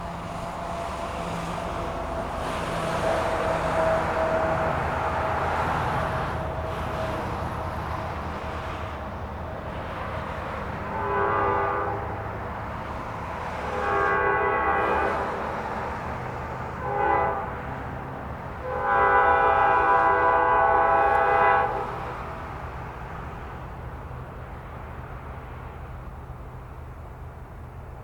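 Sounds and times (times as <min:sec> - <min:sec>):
low rumble of train: 0:00.0 - 0:28.0
locomotive air horn blasts: 0:01.8 - 0:06.3, 0:10.9 - 0:12.3, 0:13.6 - 0:15.6, 0:16.7 - 0:22.4.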